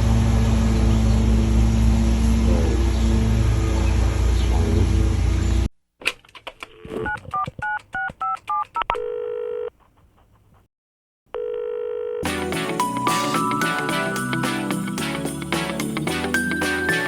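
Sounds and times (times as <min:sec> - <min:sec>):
phone line ringing tones: 0:11.4 - 0:12.3
music: 0:12.3 - 0:17.0.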